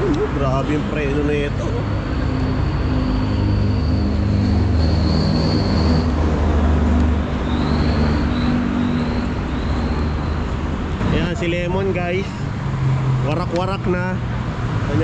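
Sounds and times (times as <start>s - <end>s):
thin high whine: 1.6s - 6.6s.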